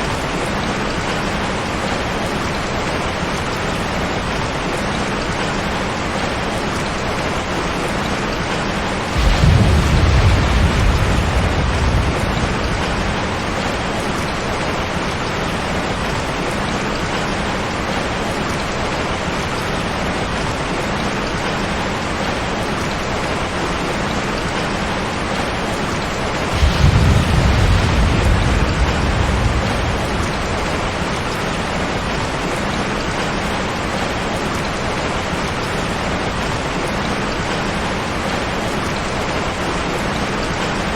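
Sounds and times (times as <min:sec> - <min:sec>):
heavy rain: 0:00.0 - 0:40.9
thunder rumbling: 0:08.8 - 0:17.2, 0:25.2 - 0:34.6.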